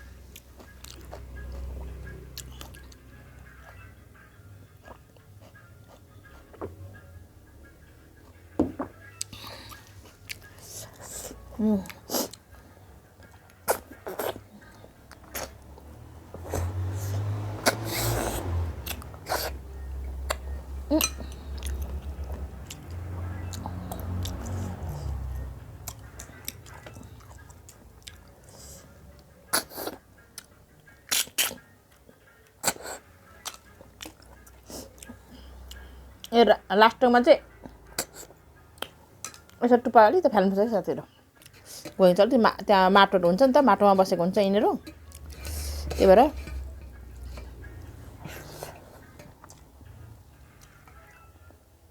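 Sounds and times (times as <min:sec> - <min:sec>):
person chewing with mouth smacks: 0:00.3 - 0:03.8, 0:13.2 - 0:19.6, 0:20.2 - 0:28.8, 0:29.5 - 0:31.7, 0:32.6 - 0:35.8, 0:37.6 - 0:39.6, 0:44.8 - 0:49.8.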